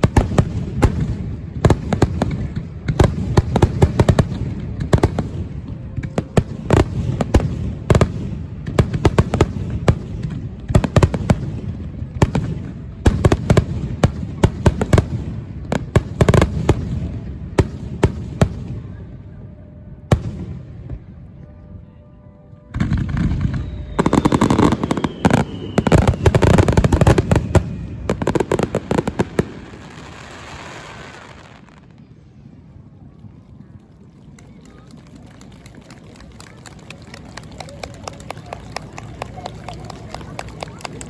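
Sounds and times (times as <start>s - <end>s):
fireworks bangs: 0.0s - 21.7s, 22.7s - 32.0s.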